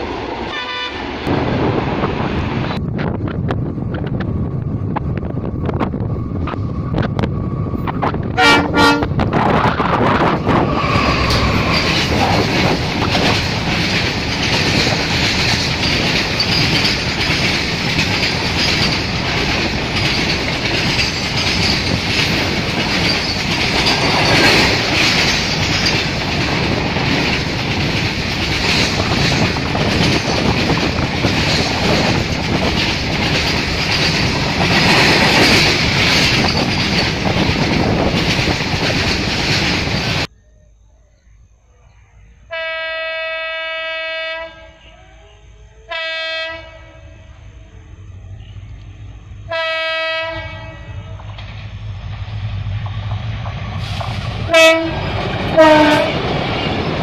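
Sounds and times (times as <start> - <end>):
diesel locomotive horn blasts: 0.5 - 1.1, 8.3 - 9.3, 42.5 - 45.0, 45.8 - 47.5, 49.5 - 51.2, 54.5 - 56.2
wagons clattering over rail joints: 9.5 - 40.3.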